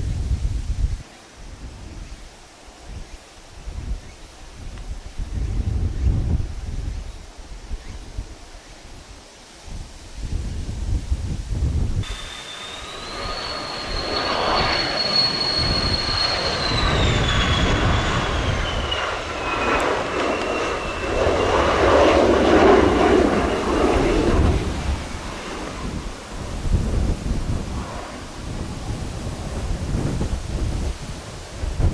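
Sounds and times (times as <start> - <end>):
jet engine whine: 12.0 - 31.9
jet roar: 12.0 - 31.9.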